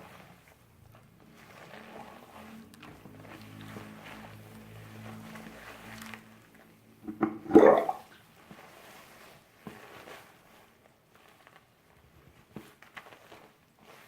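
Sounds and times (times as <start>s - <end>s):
wet handling sounds: 0.0s - 14.0s
water splash: 7.0s - 8.1s.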